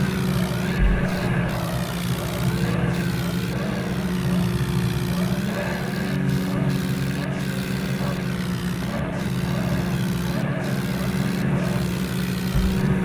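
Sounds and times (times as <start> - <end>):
vehicle engine running steadily: 0.0 - 13.0.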